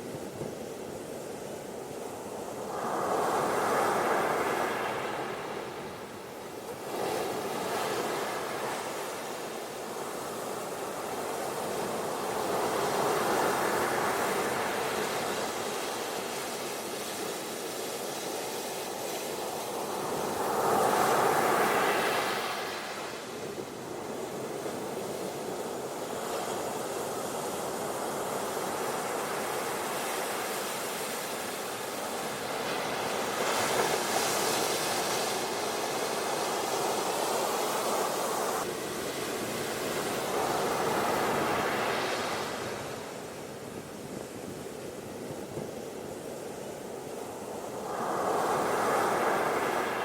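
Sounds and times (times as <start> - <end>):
ocean waves breaking on beach: 0.0 - 50.0.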